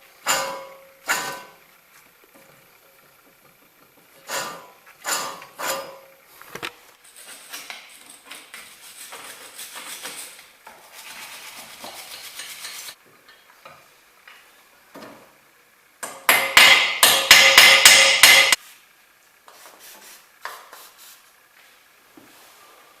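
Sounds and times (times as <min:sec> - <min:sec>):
ringing metallic knocks: 0:16.3 - 0:18.6.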